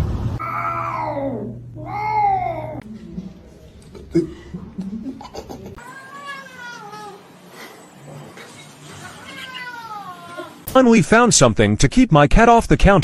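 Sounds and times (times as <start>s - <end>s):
cat meowing: 0.4s - 2.8s, 5.8s - 7.2s, 9.0s - 10.6s.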